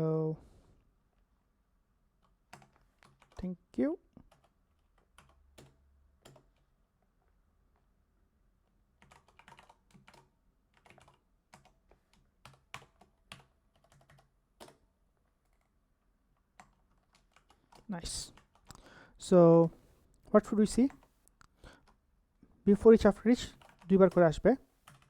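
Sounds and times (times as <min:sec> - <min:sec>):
typing on a keyboard: 0:02.2 - 0:03.4, 0:04.2 - 0:06.7, 0:09.0 - 0:18.9, 0:20.8 - 0:22.0, 0:23.3 - 0:25.0.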